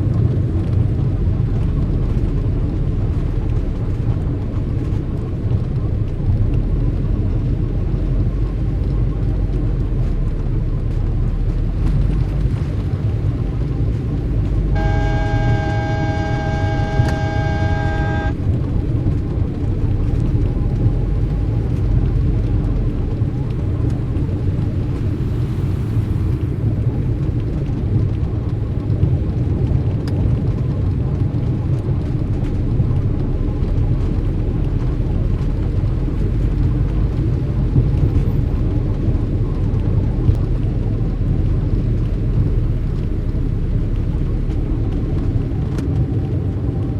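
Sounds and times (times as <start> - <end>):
street traffic rumble: 0.0 - 46.9
horn long note: 14.7 - 18.4.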